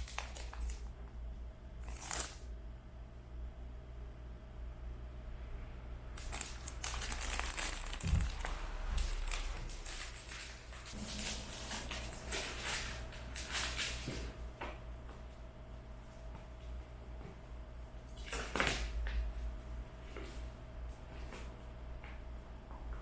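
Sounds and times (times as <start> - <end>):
crinkling of crumpled material: 0.0 - 0.9, 1.8 - 2.5, 6.2 - 14.0.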